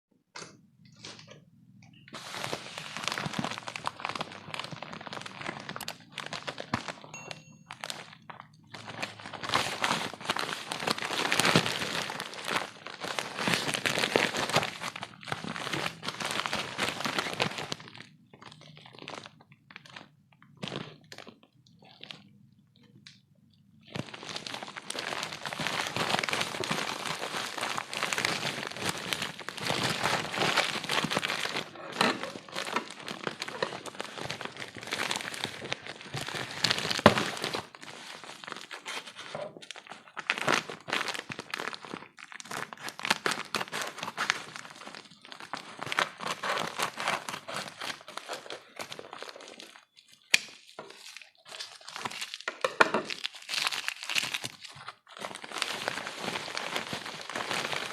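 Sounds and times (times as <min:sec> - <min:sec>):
plastic wrapping crinkling: 0:00.9 - 0:23.2, 0:23.8 - 0:57.9
packaging tearing: 0:02.2 - 0:07.1, 0:08.7 - 0:19.3, 0:23.9 - 0:52.5, 0:53.1 - 0:57.9.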